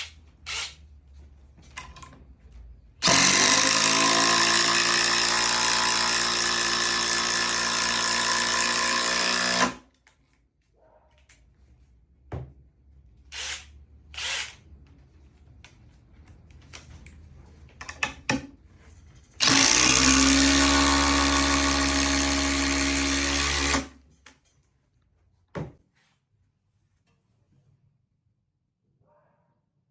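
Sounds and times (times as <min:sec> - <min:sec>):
impact driver running: 0:03.0 - 0:09.9, 0:19.4 - 0:24.0
clicks and handling knocks: 0:15.6 - 0:19.4.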